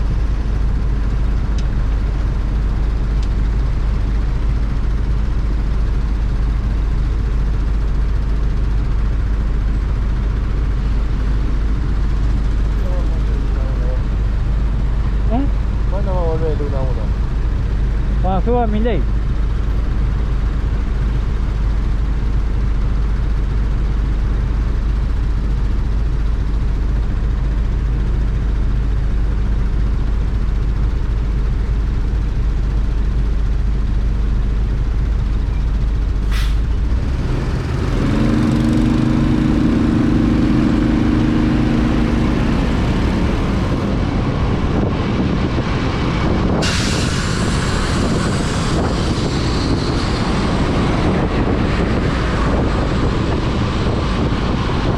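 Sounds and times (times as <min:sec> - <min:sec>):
motorcycle engine and road rumble: 0:00.0 - 0:54.9
wind: 0:00.0 - 0:54.9
hiss of wet road spray: 0:36.2 - 0:36.7, 0:46.6 - 0:49.8.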